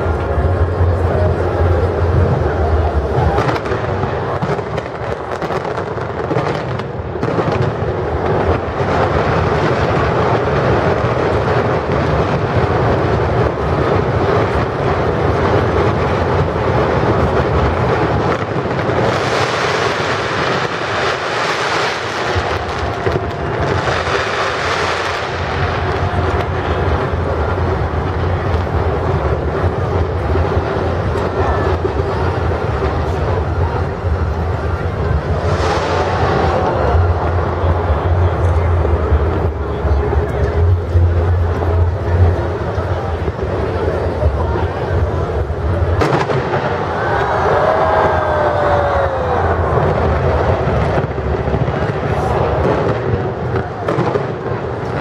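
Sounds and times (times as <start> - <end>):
fireworks crackling and bursting: 0.0 - 55.0.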